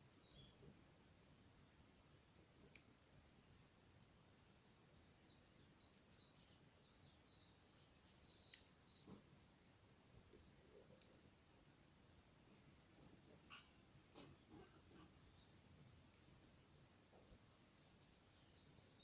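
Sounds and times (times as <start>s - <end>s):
faint bird chirps: 0.0s - 3.3s, 3.9s - 11.6s, 12.9s - 19.0s.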